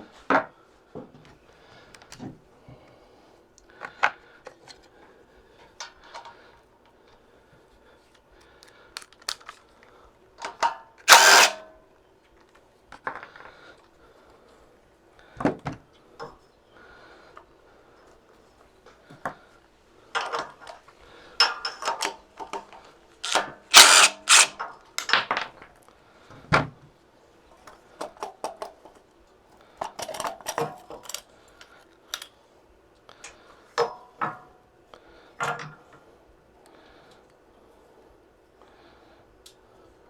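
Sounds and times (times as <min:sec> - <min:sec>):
hand tools and metal parts clinking: 0:11.1 - 0:11.6, 0:23.3 - 0:25.1.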